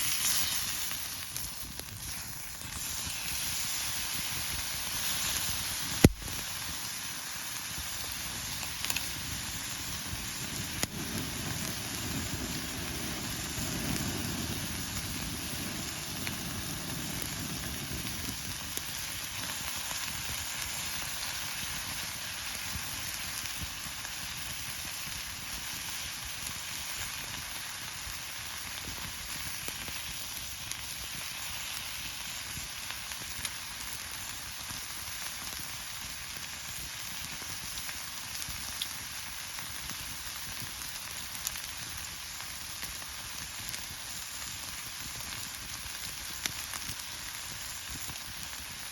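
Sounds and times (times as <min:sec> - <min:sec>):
meat sizzling on a griddle: 0:00.0 - 0:48.9
sharp pops: 0:05.9 - 0:06.5.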